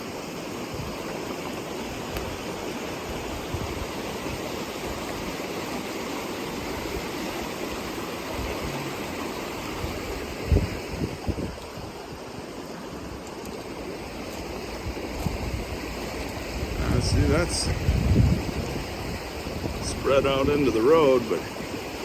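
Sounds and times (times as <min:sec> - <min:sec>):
storm runoff rushing: 0:00.0 - 0:22.0.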